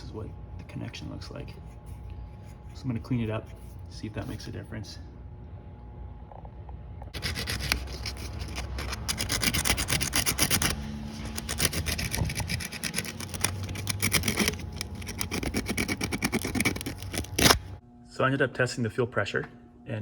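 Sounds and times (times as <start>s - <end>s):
abrasive scrubbing: 7.2s - 17.8s.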